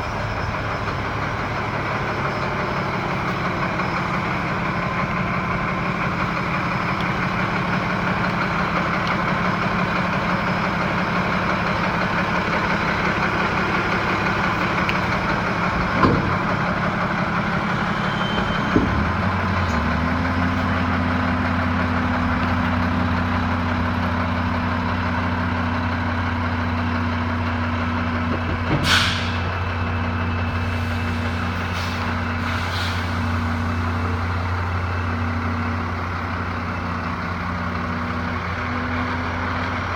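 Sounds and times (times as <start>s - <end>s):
diesel truck engine idling: 0.0s - 39.9s
air hiss burst: 28.8s - 29.4s, 30.6s - 33.5s.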